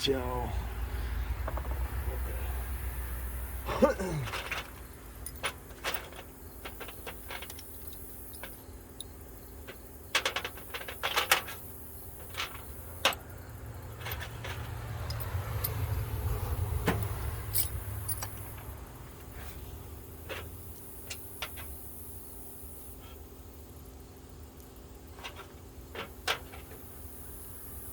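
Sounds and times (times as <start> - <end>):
metal tools clinking: 3.7 - 11.6, 12.2 - 13.3, 14.0 - 15.9, 16.9 - 18.6.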